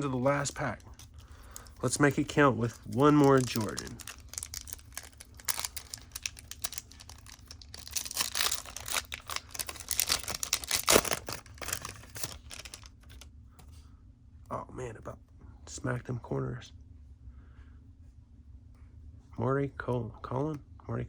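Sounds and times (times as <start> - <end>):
card pack wrapper tearing: 0.0 - 13.2
cards shuffled: 0.0 - 13.2.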